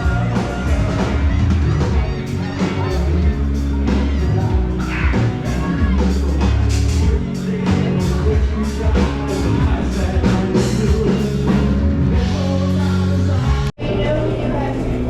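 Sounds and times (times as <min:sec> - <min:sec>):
drums hitting: 0:00.0 - 0:13.7
live rock band playing: 0:00.0 - 0:13.8
steady bass line: 0:00.0 - 0:15.0.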